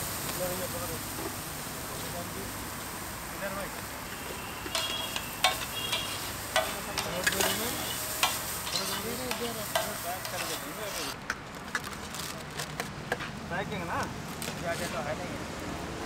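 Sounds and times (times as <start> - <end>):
onions sizzling on a griddle: 0.0 - 11.2
metal spatula scraping griddle: 4.7 - 11.2.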